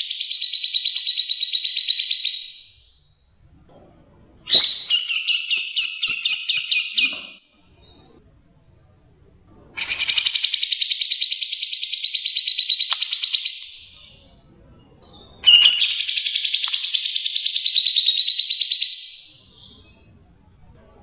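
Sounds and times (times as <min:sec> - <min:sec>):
songbird high-pitched trills: 0:15.1 - 0:20.1.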